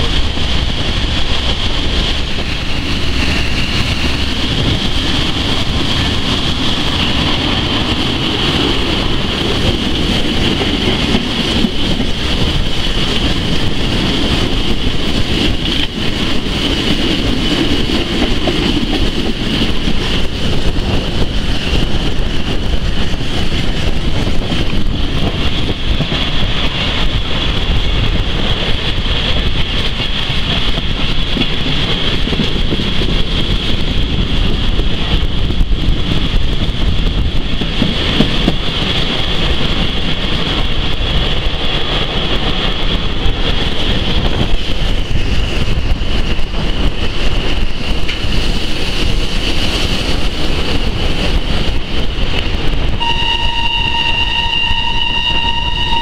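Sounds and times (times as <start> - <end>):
train wheels rumbling: 0.0 - 56.0
wind noise: 0.0 - 56.0
high-pitched whine: 53.0 - 56.0.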